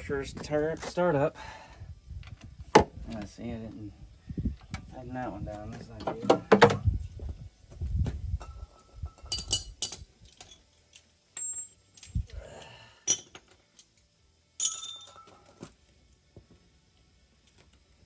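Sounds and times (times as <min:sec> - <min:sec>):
metal tools clinking on metal: 0:08.5 - 0:12.3, 0:13.1 - 0:14.0, 0:14.6 - 0:15.5.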